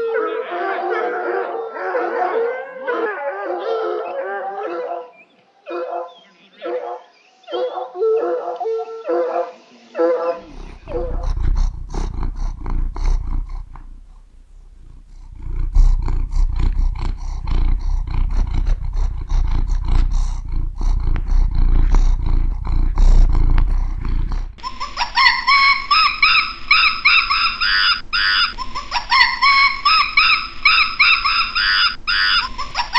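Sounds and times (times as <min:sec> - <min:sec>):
cat purring: 0:10.4 - 0:26.8
cat chirping calls: 0:10.4 - 0:32.9.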